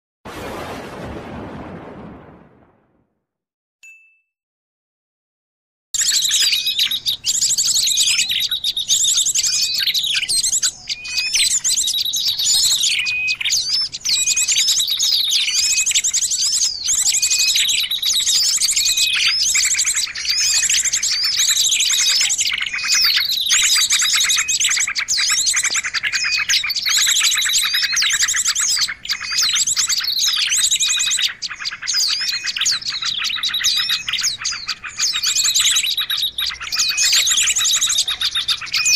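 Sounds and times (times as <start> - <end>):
songbirds chirping and trilling: 6.0 - 38.9.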